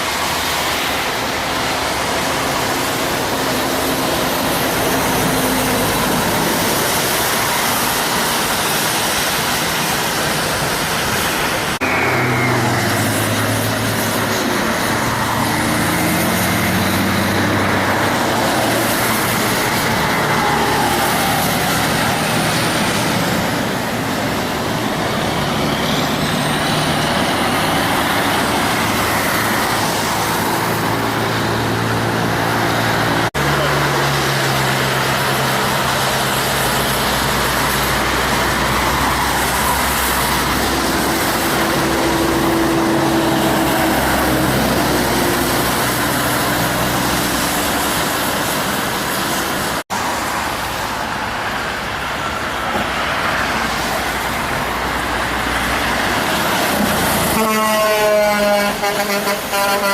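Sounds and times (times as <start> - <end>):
diesel trucks driving past: 0.0 - 59.9
tyre and road noise: 0.0 - 59.9.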